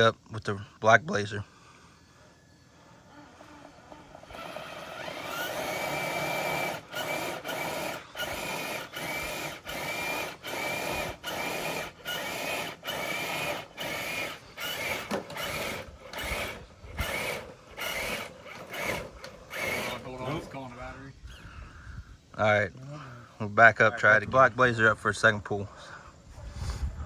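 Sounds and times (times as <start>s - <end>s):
electric motor and gears whining: 2.0s - 21.8s.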